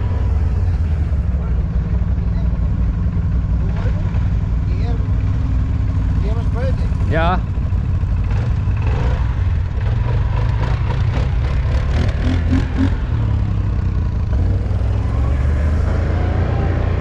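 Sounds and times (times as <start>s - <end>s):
quad bike engine rumbling: 0.0s - 17.0s.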